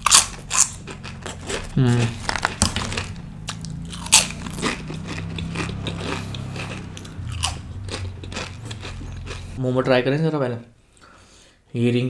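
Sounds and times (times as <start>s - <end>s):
crunching and chewing chips: 0.0s - 9.6s.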